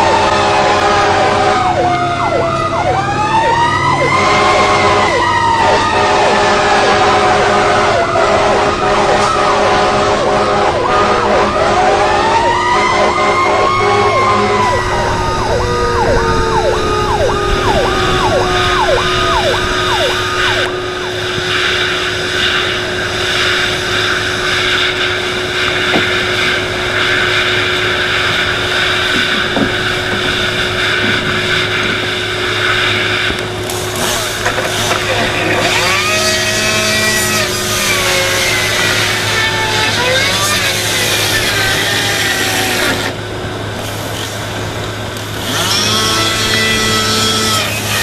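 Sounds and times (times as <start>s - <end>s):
siren yelping: 0.0s - 26.2s, 35.1s - 43.2s
siren wailing: 0.0s - 43.4s
loud rumbling noise with hum: 0.0s - 48.0s.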